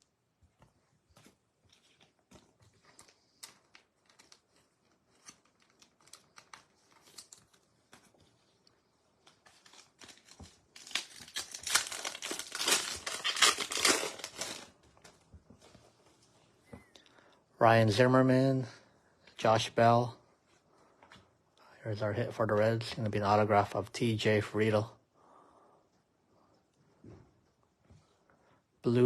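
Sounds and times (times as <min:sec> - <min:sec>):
foil wrapper crinkling: 0:01.7 - 0:07.8, 0:09.2 - 0:15.2.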